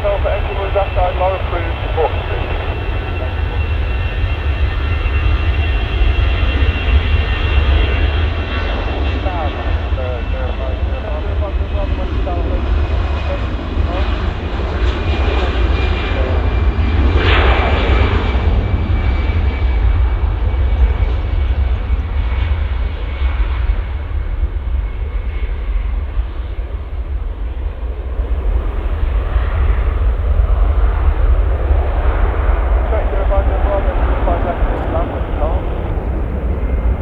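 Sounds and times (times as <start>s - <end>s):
thin high engine whine: 0.0s - 16.4s, 28.0s - 37.0s
jet engines deep rumble: 0.0s - 37.0s.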